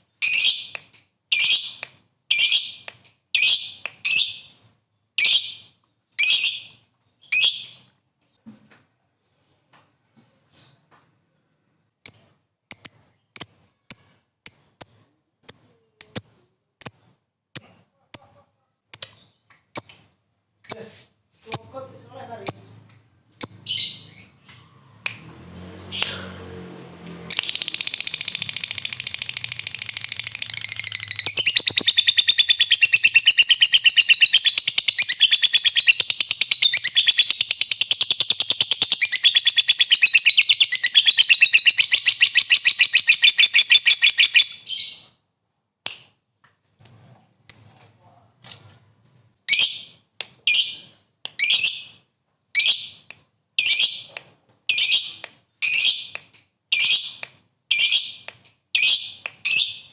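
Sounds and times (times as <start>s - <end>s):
lovebird shrill trill: 27.3s - 45.1s.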